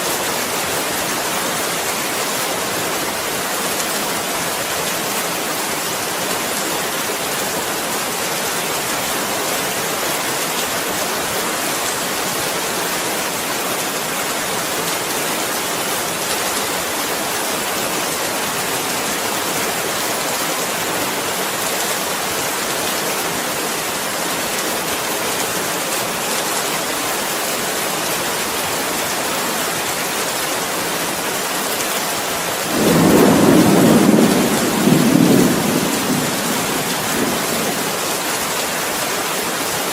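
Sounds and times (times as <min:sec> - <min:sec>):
steady rainfall: 0:00.0 - 0:39.9
thunder rumbling: 0:32.7 - 0:38.0.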